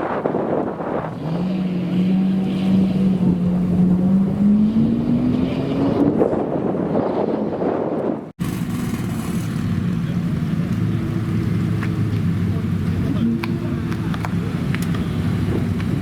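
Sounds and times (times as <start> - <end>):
wind noise on microphone: 0.0 - 9.4, 14.8 - 16.0
sports car engine accelerating: 0.7 - 7.6.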